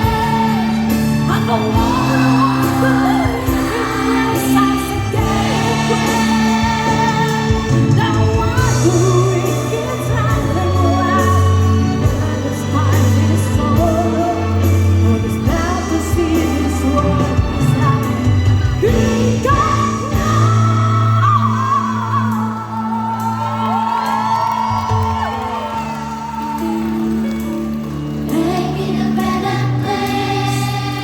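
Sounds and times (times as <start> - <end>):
children's choir singing: 0.0 - 21.5, 28.2 - 31.0
instrumental accompaniment with bass: 0.0 - 31.0.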